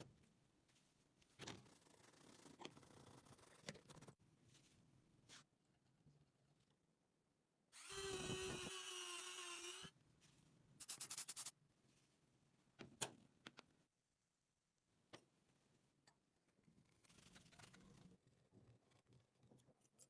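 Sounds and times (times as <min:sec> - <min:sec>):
power drill whining: 0:07.8 - 0:09.9.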